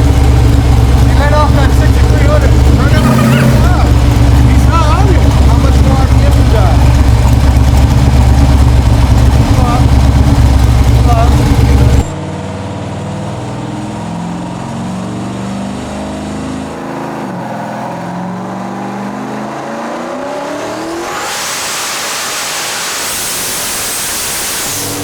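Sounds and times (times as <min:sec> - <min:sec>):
turbocharged engine revving: 0:00.0 - 0:25.0
loud even rushing noise: 0:20.8 - 0:25.0.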